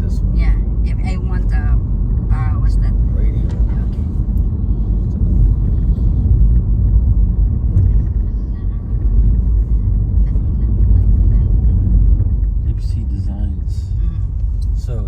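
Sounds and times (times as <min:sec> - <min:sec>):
low road rumble in car cabin: 0:00.0 - 0:15.0.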